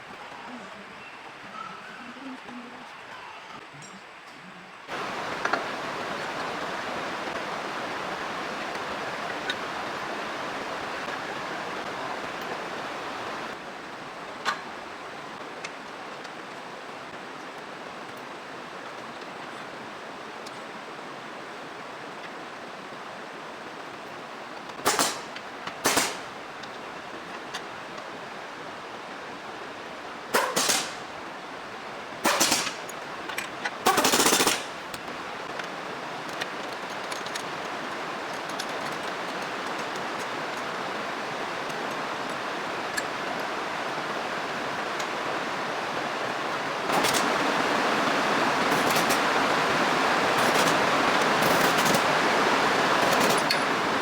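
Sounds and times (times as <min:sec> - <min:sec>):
steady hiss: 0:00.0 - 0:54.0
power tool bursts: 0:30.4 - 0:31.1, 0:46.9 - 0:47.5, 0:48.6 - 0:49.4, 0:50.3 - 0:52.1.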